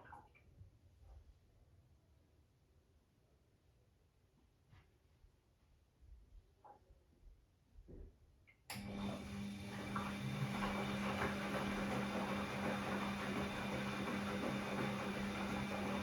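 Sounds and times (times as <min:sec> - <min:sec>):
washing machine humming: 0:08.7 - 0:16.0.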